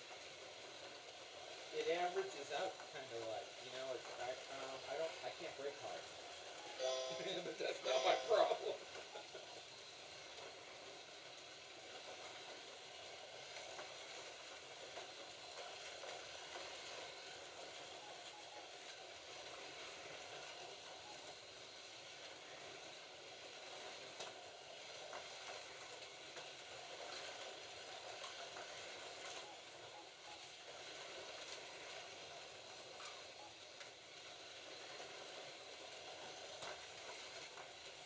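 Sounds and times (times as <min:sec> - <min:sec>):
slot cars whirring: 0:03.9 - 0:22.2.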